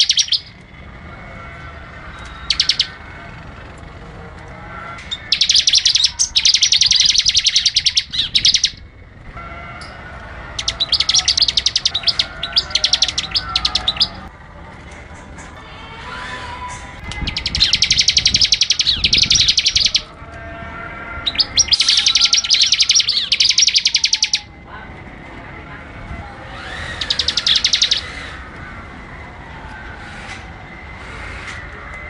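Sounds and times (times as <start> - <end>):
faint bird chirps: 0.0 - 0.6
slow falling bird whistle: 0.0 - 0.6, 26.6 - 28.4
songbird fast high trill: 0.0 - 0.6, 5.1 - 8.8, 10.6 - 14.3, 17.1 - 20.1, 21.2 - 24.5, 26.6 - 28.3.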